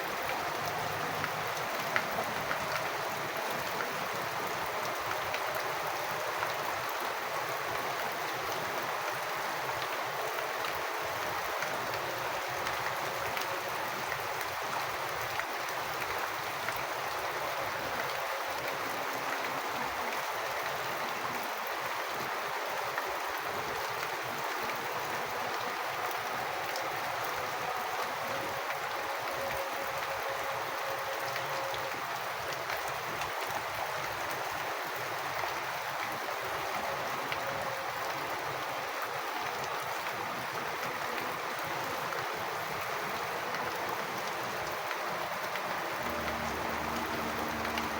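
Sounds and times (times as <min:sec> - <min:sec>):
rainwater splashing: 0:00.0 - 0:47.9
water drips: 0:46.0 - 0:47.9.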